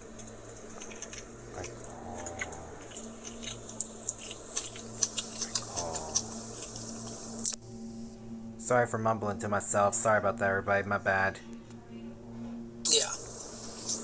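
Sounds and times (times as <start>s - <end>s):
man chewing crispy food: 0.0s - 7.6s
mumbled hum: 0.0s - 14.0s
wet mouth clicks: 0.8s - 7.6s.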